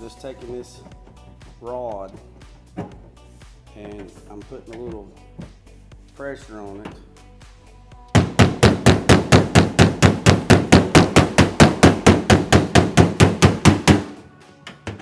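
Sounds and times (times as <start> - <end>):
hammer blows on sheet metal: 8.2 - 14.2.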